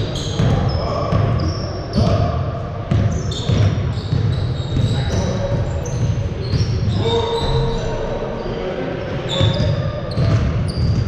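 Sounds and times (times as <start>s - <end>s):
sneakers squeaking: 0.0s - 11.0s
basketball bouncing: 2.9s - 7.6s, 9.4s - 11.0s.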